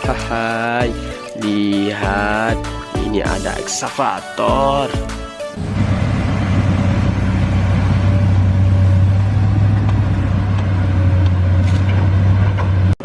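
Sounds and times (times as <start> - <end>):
loud motor drone: 5.6 - 12.9.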